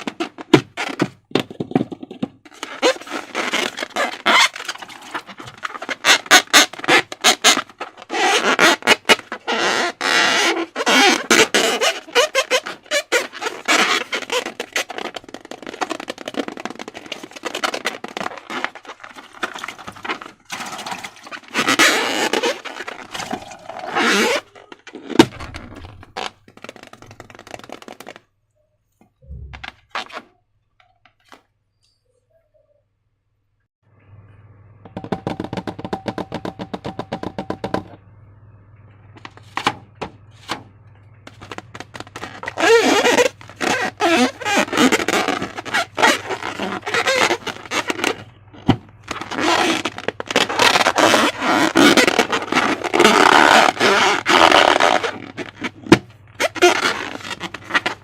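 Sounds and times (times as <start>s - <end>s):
scraping and crackling: 0.0s - 28.2s, 41.3s - 58.0s
balloon rubber squeaking: 0.0s - 28.3s, 29.2s - 30.4s, 41.3s - 58.0s
low thump: 29.2s - 29.8s.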